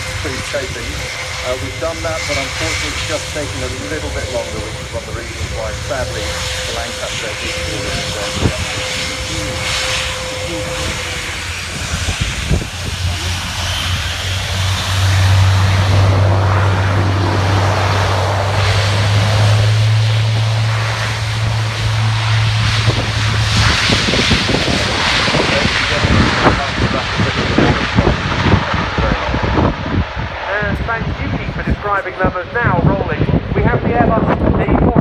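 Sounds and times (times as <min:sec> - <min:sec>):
turboprop propeller drone: 0:00.0 - 0:35.0.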